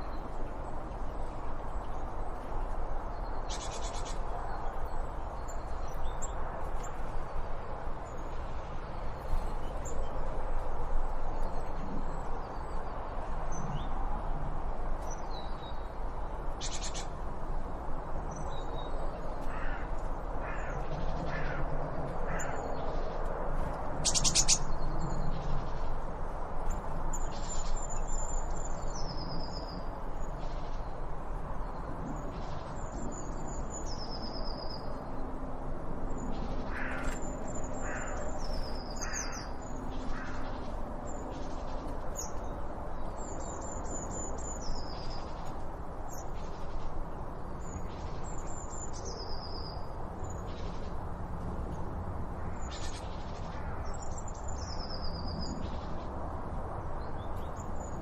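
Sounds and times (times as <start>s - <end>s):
outdoor background hiss: 0.0s - 58.0s
birds chirping: 24.0s - 25.4s.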